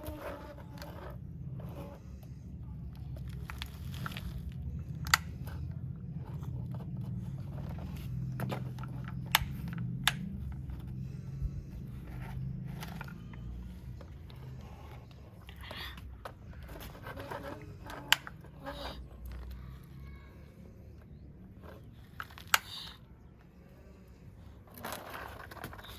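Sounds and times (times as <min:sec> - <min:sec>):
toy excavator scraping soil: 0:00.0 - 0:20.0, 0:24.2 - 0:25.9
low rumble: 0:01.2 - 0:15.4
sharp plastic clicks: 0:04.9 - 0:05.7, 0:08.4 - 0:10.9.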